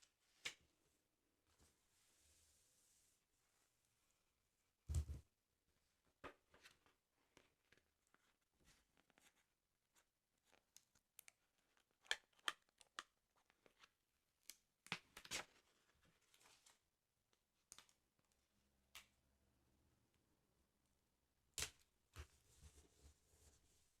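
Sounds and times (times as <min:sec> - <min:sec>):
paper crinkling and tapping: 0:06.2 - 0:13.9.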